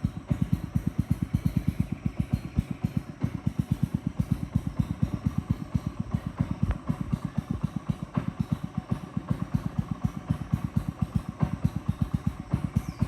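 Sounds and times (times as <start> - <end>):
boat engine thumping: 0.0 - 13.0.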